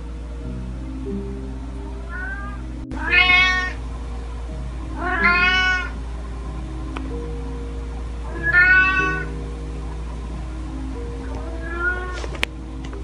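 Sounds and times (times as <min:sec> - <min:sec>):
background music with held notes: 0:00.0 - 0:13.0
cat meowing: 0:02.1 - 0:03.8, 0:05.0 - 0:06.0, 0:08.3 - 0:09.3, 0:11.3 - 0:12.2.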